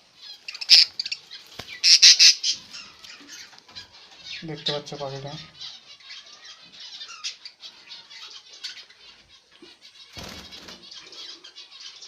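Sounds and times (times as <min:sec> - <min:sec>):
budgerigars chattering: 0:00.0 - 0:12.0
wing flapping: 0:10.1 - 0:10.9.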